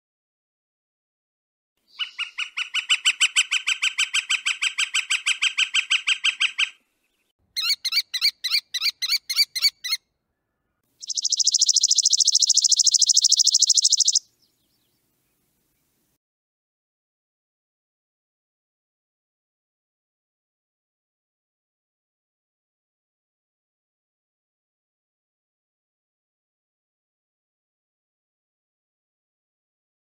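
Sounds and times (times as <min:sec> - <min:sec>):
repeated bird call notes: 0:01.9 - 0:14.9
harsh bird call series: 0:07.6 - 0:10.0, 0:11.0 - 0:14.2
fast high bird rattle: 0:11.0 - 0:14.2.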